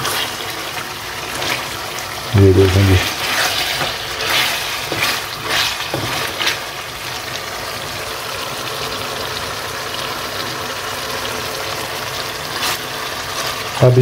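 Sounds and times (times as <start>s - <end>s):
chicken sizzling in hot oil: 0.0s - 14.0s
spatula scraping: 2.6s - 6.7s.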